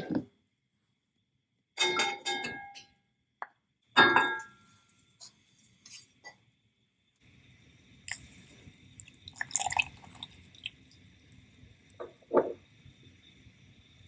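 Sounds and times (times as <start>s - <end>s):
kitchenware clinking: 1.8s - 2.9s, 4.0s - 6.3s, 12.0s - 12.6s.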